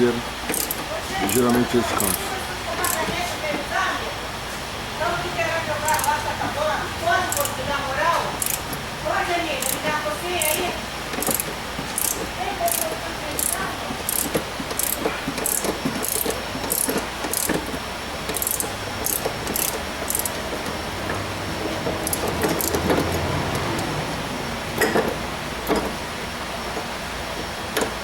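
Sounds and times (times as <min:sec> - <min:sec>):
ratchet wrench ratcheting: 0:00.4 - 0:03.2, 0:05.8 - 0:06.2, 0:07.2 - 0:08.9, 0:09.5 - 0:20.8, 0:21.6 - 0:24.0
metal clicks: 0:00.5 - 0:01.4, 0:02.8 - 0:03.1, 0:05.8 - 0:06.2, 0:07.3 - 0:07.6, 0:08.4 - 0:08.9, 0:09.6 - 0:21.2, 0:21.8 - 0:23.9.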